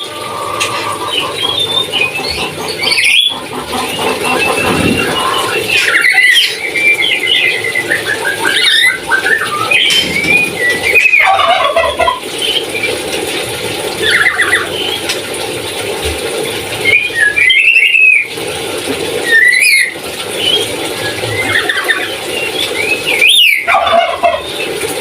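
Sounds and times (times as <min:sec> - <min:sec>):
parrot gobbling call: 0:23.3 - 0:24.5.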